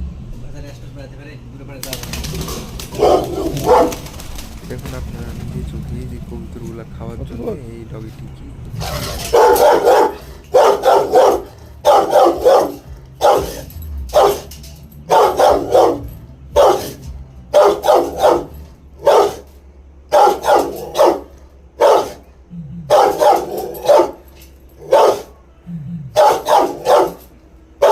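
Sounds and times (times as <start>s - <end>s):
dog barking: 2.3s - 4.2s, 8.8s - 22.3s, 22.9s - 25.5s, 26.1s - 27.9s.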